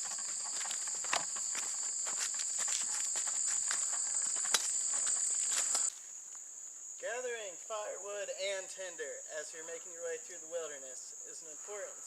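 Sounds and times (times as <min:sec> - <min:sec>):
footsteps crunching on trail: 0:00.0 - 0:06.2
insect chorus shrilling: 0:00.0 - 0:12.0.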